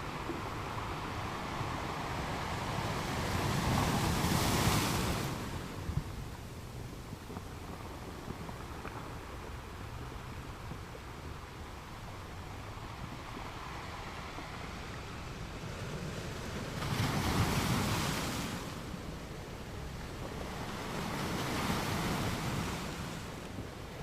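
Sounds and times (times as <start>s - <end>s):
ocean waves breaking: 0.0s - 6.0s, 11.6s - 24.0s.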